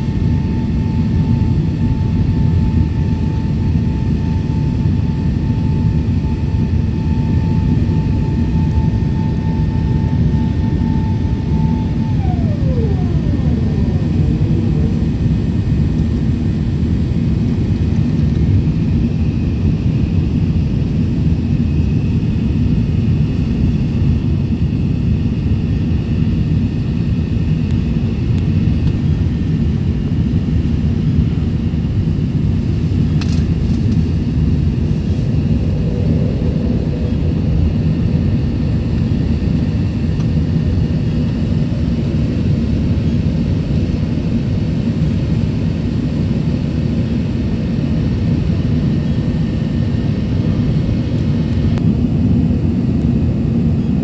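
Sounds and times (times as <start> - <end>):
jet engines rumbling: 0.0 - 54.0
rushing air: 34.0 - 38.9.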